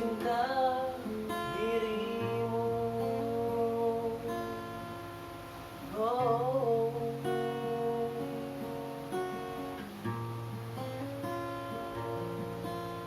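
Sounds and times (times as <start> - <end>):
person singing: 0.0 - 4.9, 5.8 - 8.8
acoustic guitar strumming: 0.0 - 13.0.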